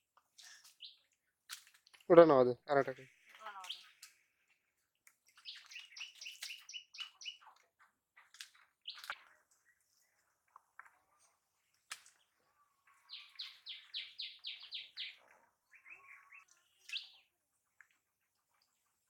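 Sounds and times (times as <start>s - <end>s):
bird singing faintly: 5.4s - 7.6s, 12.2s - 17.3s.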